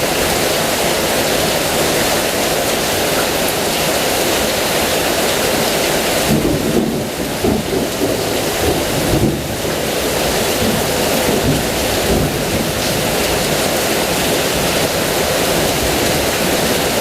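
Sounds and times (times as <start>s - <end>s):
heavy rain: 0.0s - 17.0s
thunder rumbling: 6.2s - 17.0s.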